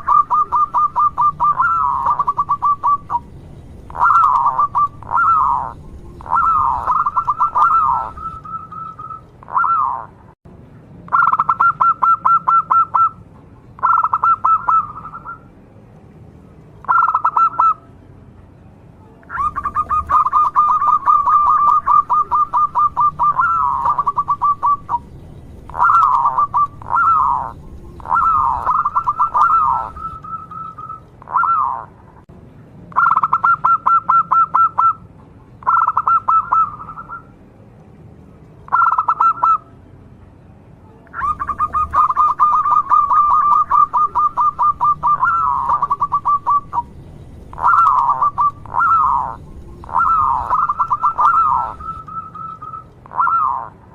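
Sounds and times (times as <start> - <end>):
dove cooing: 0.0 - 3.3, 3.9 - 10.2, 11.1 - 13.2, 13.8 - 15.4, 16.8 - 17.8, 19.3 - 25.1, 25.7 - 32.0, 35.6 - 37.3, 38.7 - 39.6, 41.2 - 46.9, 47.5 - 53.8.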